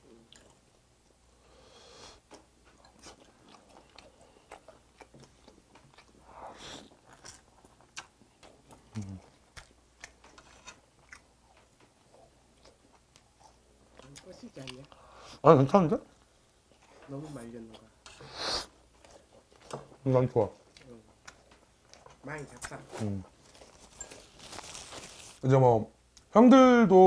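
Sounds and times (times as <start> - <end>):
close-up chewing: 2.3 - 15.0, 18.7 - 25.4.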